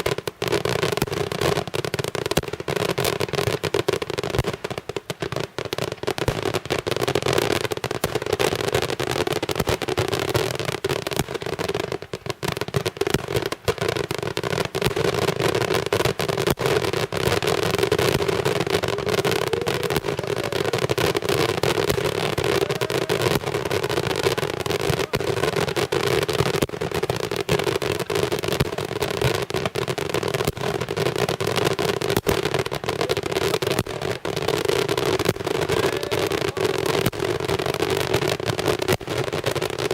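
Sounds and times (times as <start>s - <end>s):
rapid firecracker bangs: 0.0s - 39.9s.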